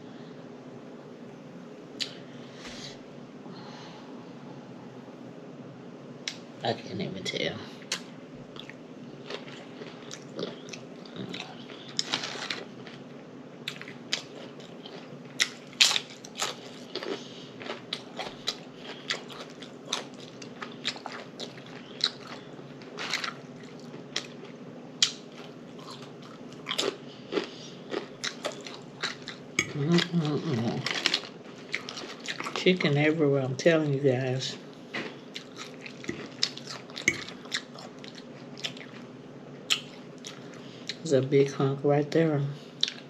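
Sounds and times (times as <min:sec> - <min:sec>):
person chewing food: 0:07.8 - 0:32.6, 0:34.9 - 0:39.1, 0:39.7 - 0:41.0, 0:42.8 - 0:43.0
food crunching: 0:07.8 - 0:33.1, 0:34.6 - 0:41.1.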